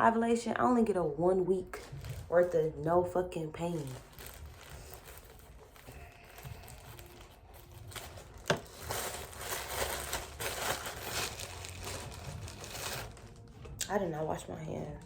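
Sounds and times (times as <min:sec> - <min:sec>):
plastic wrapping crinkling: 0:01.6 - 0:02.8, 0:03.4 - 0:13.8.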